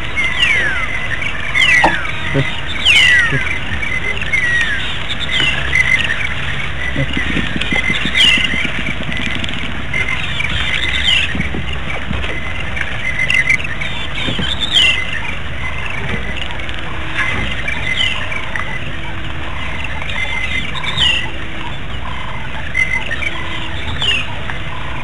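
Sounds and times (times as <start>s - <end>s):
low rumble: 0.0s - 19.9s
birds chirping: 0.0s - 25.0s.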